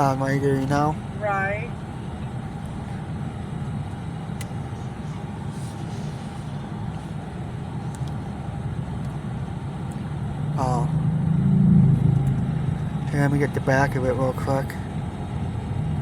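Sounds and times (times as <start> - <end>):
vehicle engine low rumble: 0.0 - 16.0.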